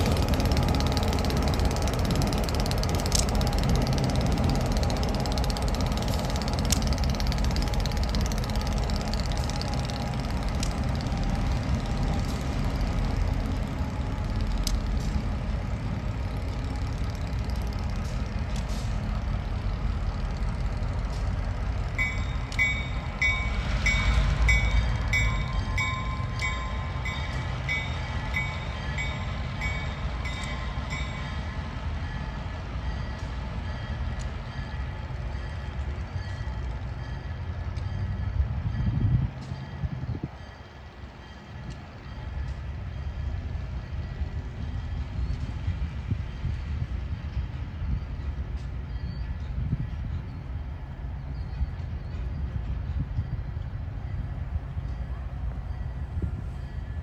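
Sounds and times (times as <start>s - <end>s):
freight train rumbling by: 0.0s - 57.0s
crossing bell ringing: 21.9s - 45.0s.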